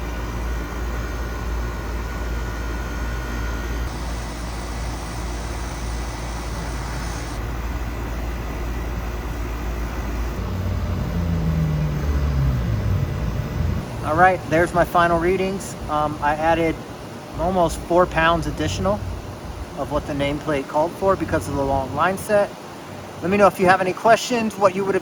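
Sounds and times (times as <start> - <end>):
air conditioner unit humming: 0.0 - 25.0
bright hiss: 3.9 - 7.4.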